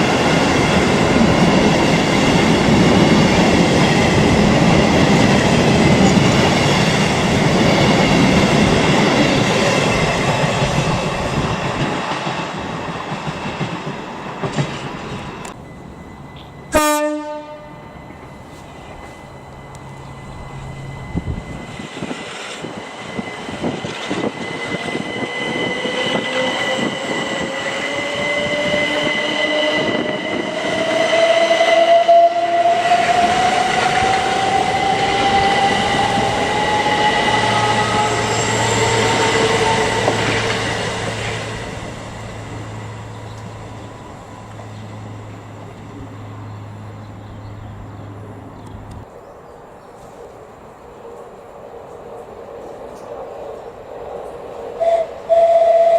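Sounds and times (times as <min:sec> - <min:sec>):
electric train motor whine: 0:14.9 - 0:49.0
steady high tone: 0:15.2 - 0:47.5.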